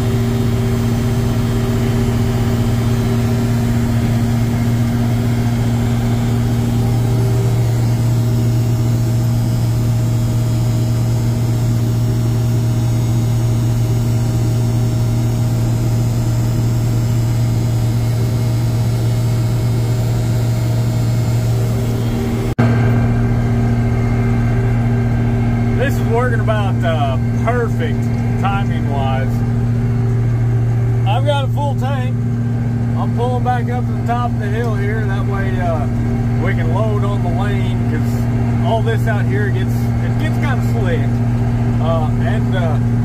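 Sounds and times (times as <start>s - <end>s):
combine harvester engine drone: 0.0s - 43.0s.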